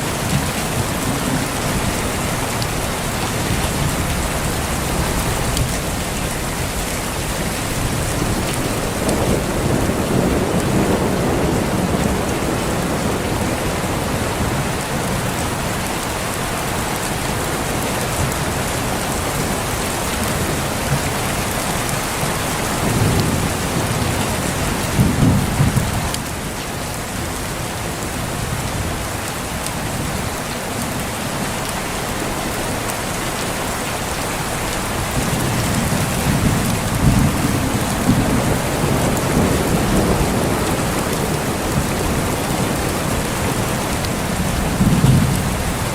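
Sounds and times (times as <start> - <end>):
heavy rain: 0.0 - 45.9
rolling thunder: 0.2 - 15.4, 20.3 - 26.6, 35.1 - 45.9.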